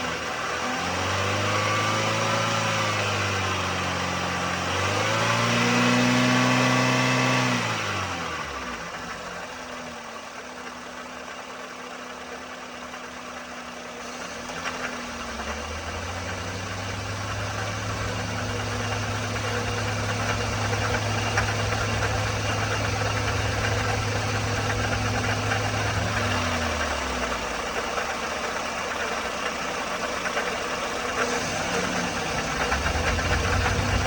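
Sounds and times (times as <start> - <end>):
engine rattle: 0.0 - 34.0
car engine idling: 7.7 - 34.0
deeper hum: 31.0 - 34.0.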